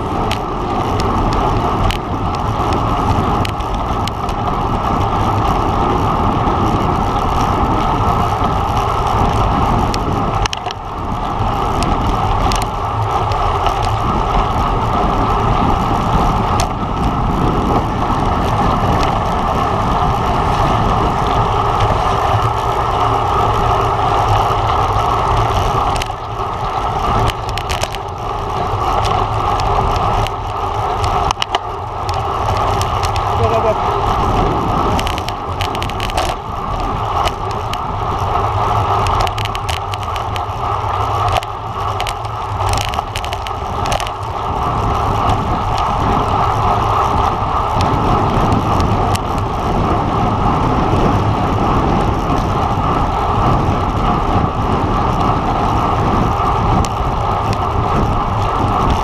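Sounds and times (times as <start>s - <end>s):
road rumble from bike: 0.0s - 59.0s
wind rush: 0.0s - 59.0s
sharp clicks and knocks: 0.2s - 4.4s, 8.4s - 10.9s, 20.4s - 44.4s.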